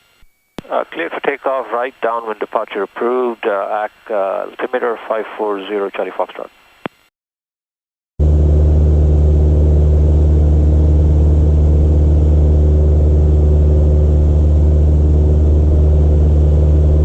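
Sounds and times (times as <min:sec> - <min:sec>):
airplane engine drone: 0:08.2 - 0:17.0.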